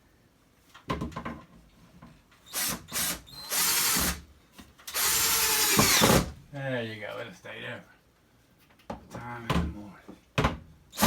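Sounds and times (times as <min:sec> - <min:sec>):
power drill driving screw: 0:02.5 - 0:04.2, 0:04.9 - 0:06.3.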